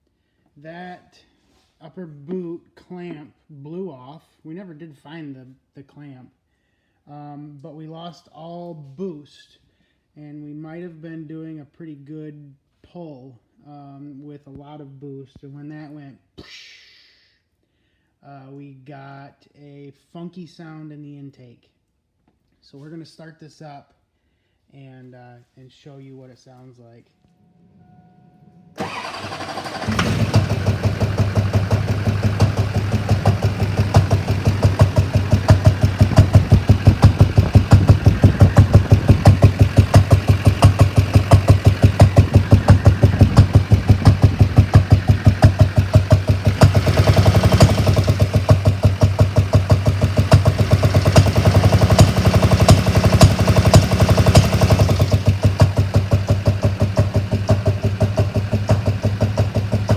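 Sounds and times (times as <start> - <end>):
diesel engine cranking and starting: 28.8 - 59.9
diesel engine idling clatter: 28.8 - 59.9.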